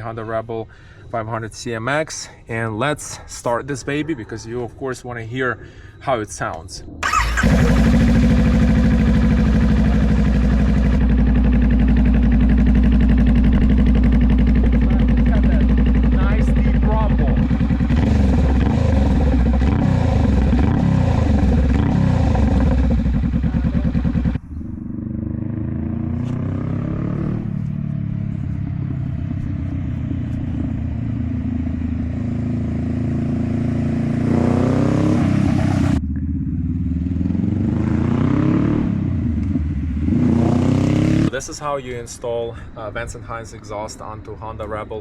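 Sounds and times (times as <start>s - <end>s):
motorcycle engine idling: 7.0s - 25.8s, 27.5s - 32.3s
motorcycle engine revving: 7.0s - 41.4s.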